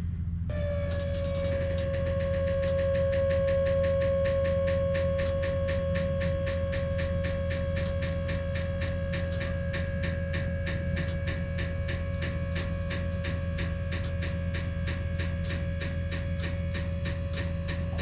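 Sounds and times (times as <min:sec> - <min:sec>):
steady whine: 0:00.0 - 0:18.0
machine engine humming: 0:00.5 - 0:18.0.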